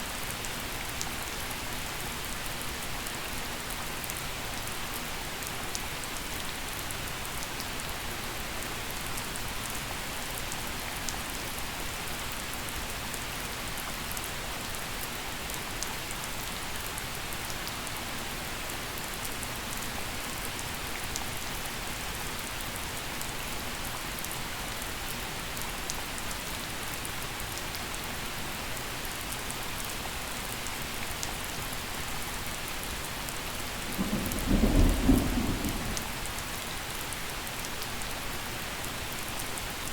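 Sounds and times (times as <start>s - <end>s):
gentle rain pattering: 0.0s - 39.9s
thunder rumble: 33.9s - 36.3s.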